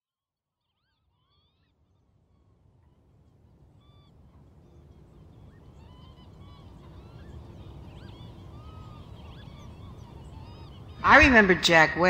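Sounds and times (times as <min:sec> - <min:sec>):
overlapping bird calls: 0:02.4 - 0:12.0.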